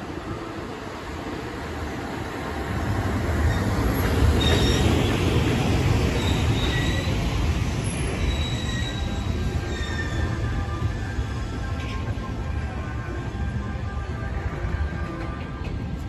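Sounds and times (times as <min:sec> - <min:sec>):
train wheels rumbling on rails: 0:00.0 - 0:16.0
high wheel squeals: 0:03.4 - 0:05.4, 0:06.1 - 0:10.8.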